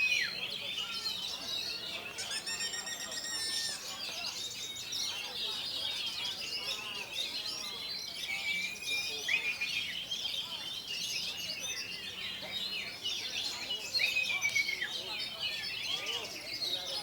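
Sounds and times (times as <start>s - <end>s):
bird chirps and whistles: 2.2s - 3.8s.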